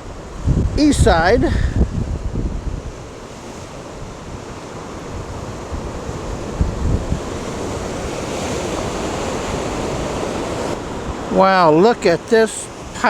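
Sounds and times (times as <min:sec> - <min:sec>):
waves washing in: 0:00.0 - 0:13.0
wind buffeting microphone: 0:00.0 - 0:13.0.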